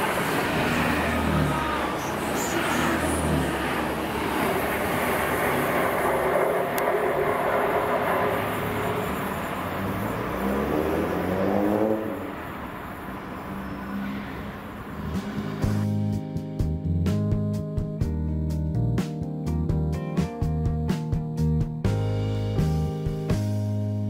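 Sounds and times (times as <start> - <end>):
diesel train engine: 0.0 - 17.4
music: 15.0 - 24.0.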